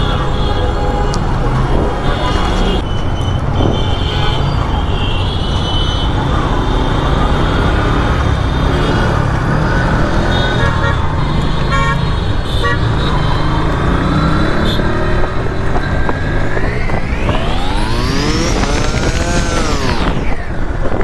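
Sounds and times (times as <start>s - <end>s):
motorcycle engine and road noise: 0.0s - 21.0s
vehicle horn toots: 10.2s - 13.6s.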